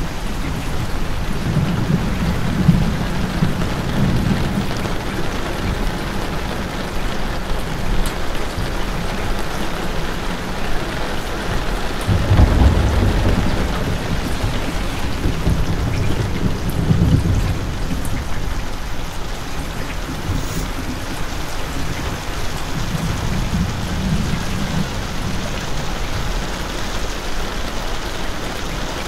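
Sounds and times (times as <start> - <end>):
heavy rain pattering: 0.0 - 29.0
low rumble: 12.1 - 25.4.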